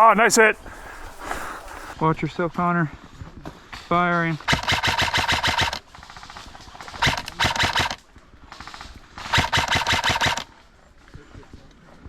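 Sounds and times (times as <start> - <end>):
airsoft rifle bursts: 4.4 - 10.6.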